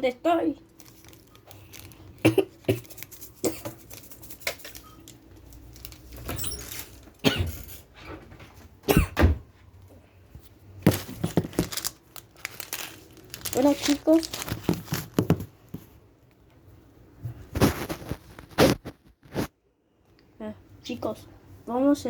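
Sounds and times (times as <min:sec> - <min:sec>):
plastic packets rustling: 0:00.5 - 0:07.2, 0:10.8 - 0:16.0, 0:17.5 - 0:19.5.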